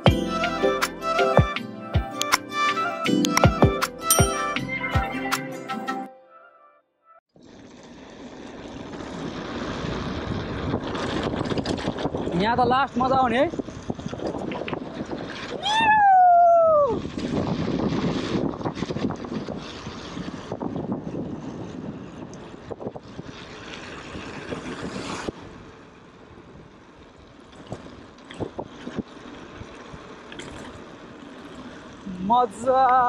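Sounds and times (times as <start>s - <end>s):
wind on microphone: 8.5s - 30.9s
falling whoop: 15.6s - 17.1s.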